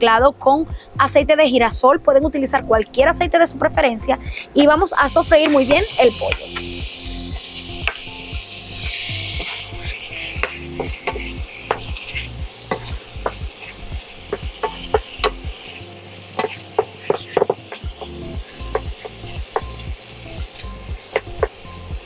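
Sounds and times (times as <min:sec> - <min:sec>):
chicken sizzling in hot oil: 0:04.8 - 0:22.0
wooden spoon scraping a pan: 0:08.8 - 0:21.6.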